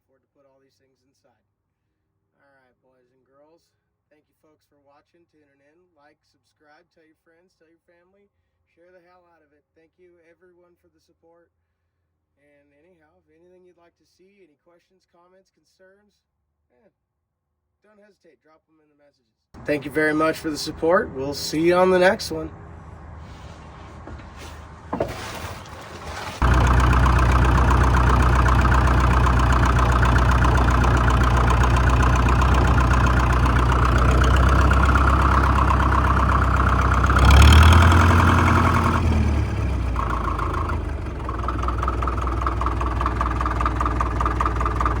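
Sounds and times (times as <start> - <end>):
diesel engine running: 19.6 - 45.0.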